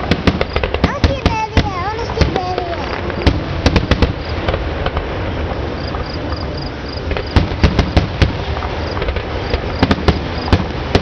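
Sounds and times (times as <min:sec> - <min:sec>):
fireworks bursting with bangs: 0:00.0 - 0:11.0
crickets chirping: 0:03.5 - 0:04.5, 0:05.6 - 0:11.0.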